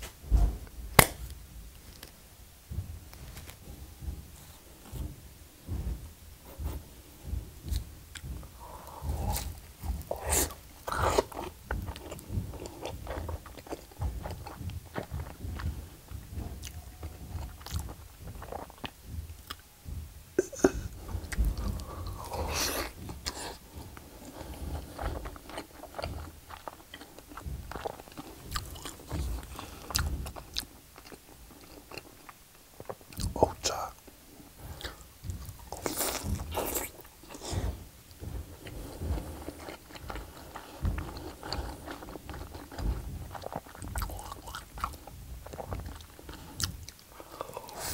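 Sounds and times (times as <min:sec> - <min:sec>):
person biting and chewing: 0:07.7 - 0:15.7, 0:20.4 - 0:33.9, 0:34.8 - 0:37.8, 0:38.6 - 0:47.9.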